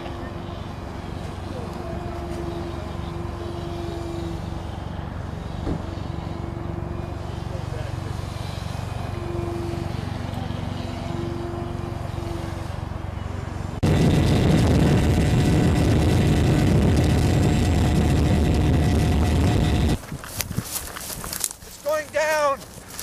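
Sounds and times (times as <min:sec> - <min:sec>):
loud noisy rush: 0:11.8 - 0:20.0
model airplane motor and propeller: 0:13.8 - 0:23.0.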